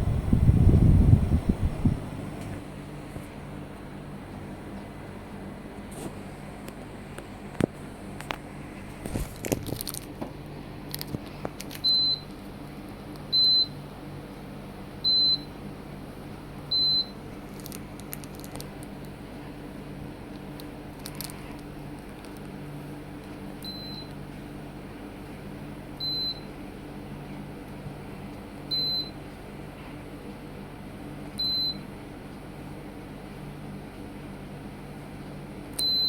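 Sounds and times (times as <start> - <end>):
air conditioner low hum: 0.0 - 36.0
air conditioner short beeps: 11.8 - 12.4, 13.3 - 13.9, 15.0 - 15.7, 16.6 - 17.3, 23.6 - 24.3, 26.0 - 26.6, 28.6 - 29.3, 31.3 - 32.0, 35.7 - 36.0.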